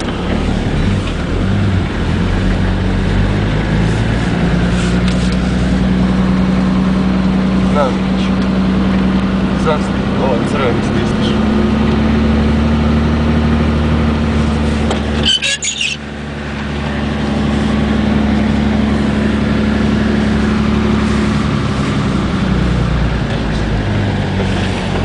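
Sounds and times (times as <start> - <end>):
car engine running: 0.0 - 25.0
high squeaks: 15.1 - 16.0.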